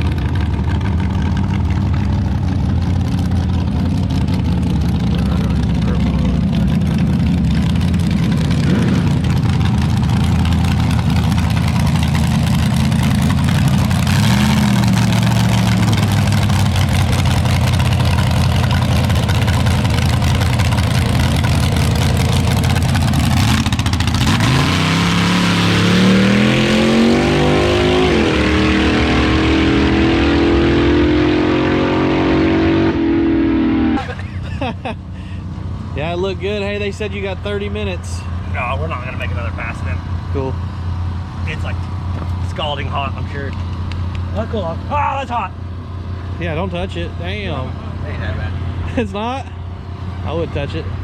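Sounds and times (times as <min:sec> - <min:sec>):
vehicle engine running: 0:00.0 - 0:51.0.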